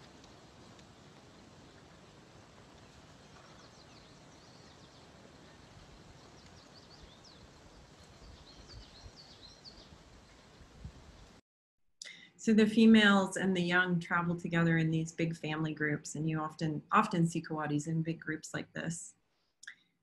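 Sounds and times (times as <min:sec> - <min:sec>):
low background noise: 0:00.0 - 0:11.4, 0:12.2 - 0:19.1
small birds chirping: 0:02.8 - 0:10.5.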